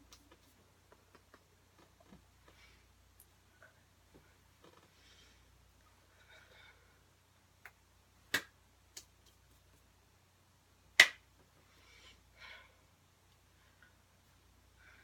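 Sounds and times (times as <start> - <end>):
soft noisy sounds: 0.0 - 15.0
sharp hand slaps: 7.6 - 9.1, 11.0 - 11.2.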